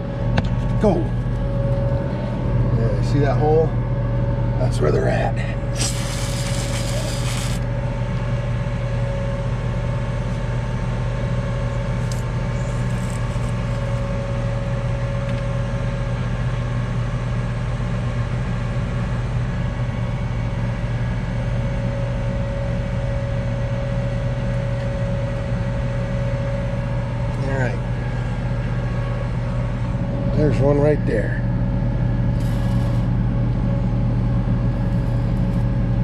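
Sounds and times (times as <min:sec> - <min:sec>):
tractor engine idling: 0:00.0 - 0:36.0
spray can hissing: 0:05.8 - 0:07.6.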